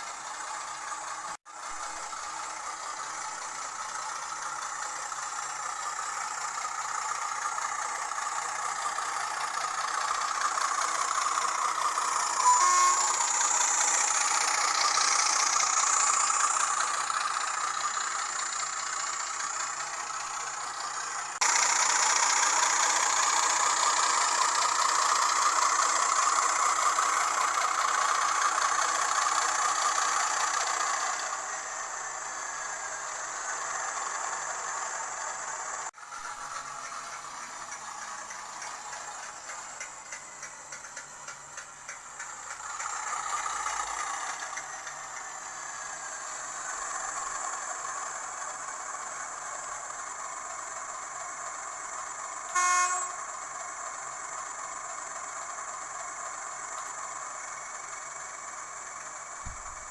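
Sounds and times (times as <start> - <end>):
model train engine sound from speaker: 0.0 - 59.9
brief tone: 12.3 - 13.9, 52.5 - 53.2.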